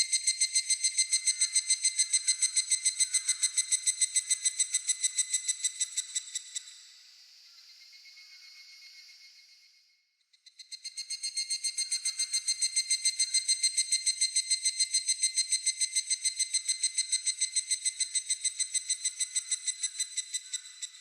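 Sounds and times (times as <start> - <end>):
cicada calling: 0.0 - 6.7, 10.7 - 21.0.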